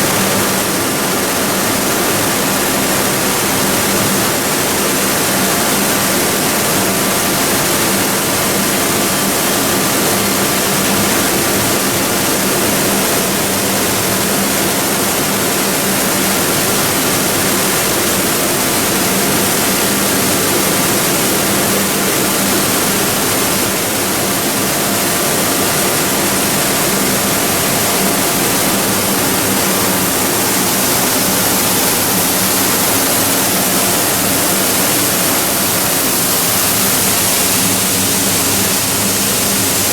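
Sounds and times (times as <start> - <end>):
loud steady hissing: 0.0 - 39.9
machine low hum: 20.3 - 39.9.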